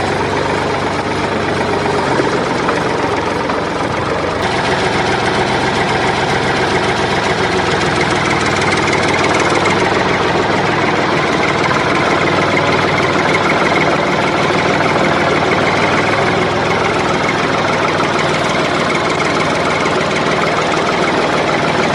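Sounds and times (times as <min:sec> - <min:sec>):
motor humming: 0:00.0 - 0:21.9.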